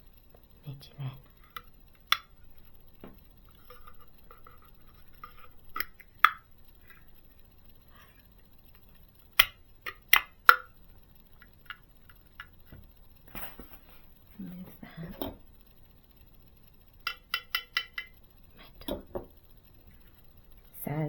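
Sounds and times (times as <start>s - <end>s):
plastic packaging rustling: 12.7s - 14.8s.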